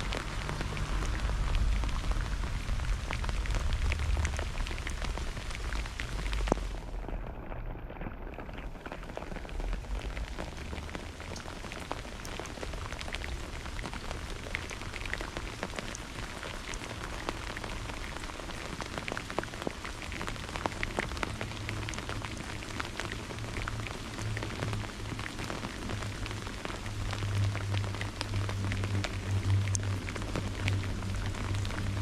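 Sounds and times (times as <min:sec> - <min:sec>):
low rumble: 0:00.0 - 0:08.8, 0:20.8 - 0:32.0
rain drops ticking: 0:00.0 - 0:32.0.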